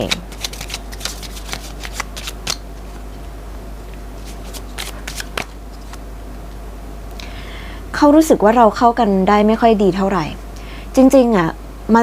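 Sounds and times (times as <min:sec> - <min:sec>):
cards snapping: 0:00.0 - 0:02.6, 0:04.2 - 0:06.0.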